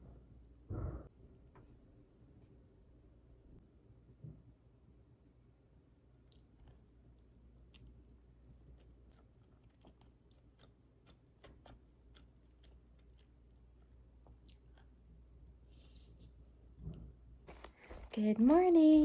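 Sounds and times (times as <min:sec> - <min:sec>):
person chewing and biting: 0:07.6 - 0:15.3.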